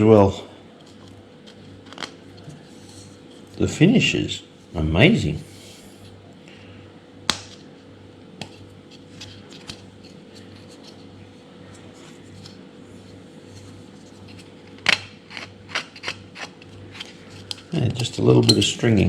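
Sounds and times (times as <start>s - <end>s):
steady low hum: 0.0s - 19.0s
plastic part clicks and scratches: 14.2s - 17.6s.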